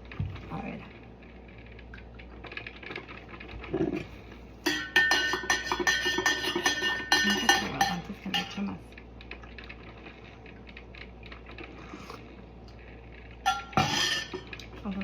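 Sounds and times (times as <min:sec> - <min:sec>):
spoon clinking in coffee cup: 0:04.6 - 0:08.5.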